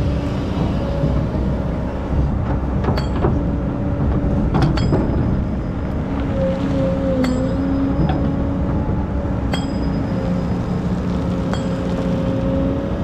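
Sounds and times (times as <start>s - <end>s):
diesel engine droning: 0.0s - 13.0s
sharp metallic clinks: 3.0s - 3.6s, 4.6s - 6.1s, 7.2s - 8.6s, 9.5s - 10.8s, 11.4s - 12.6s.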